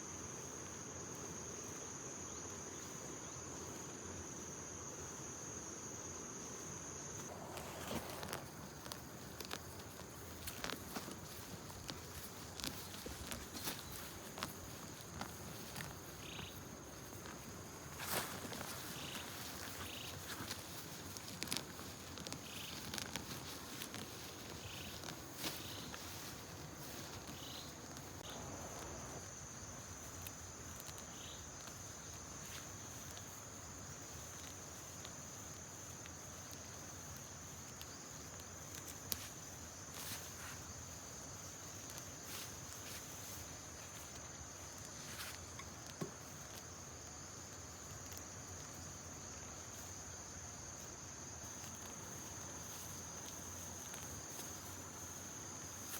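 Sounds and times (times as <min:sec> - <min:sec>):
insects trilling: 0:00.0 - 0:55.9.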